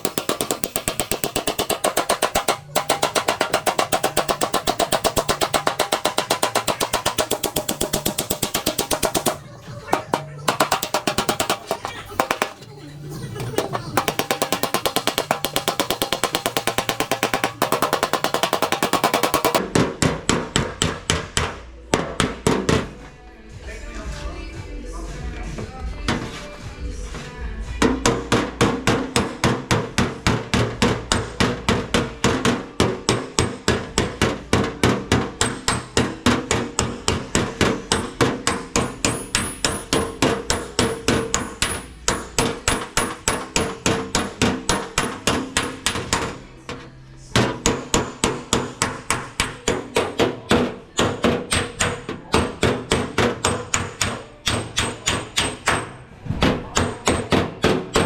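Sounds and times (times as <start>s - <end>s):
hammer beating metal panel: 0.0s - 12.6s, 13.5s - 22.9s.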